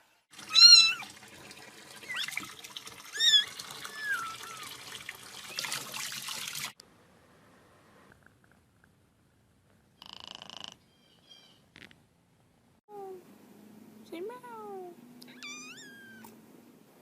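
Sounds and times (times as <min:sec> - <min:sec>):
water running from tap into sink: 0:00.3 - 0:06.8
cat mewing: 0:15.3 - 0:16.4.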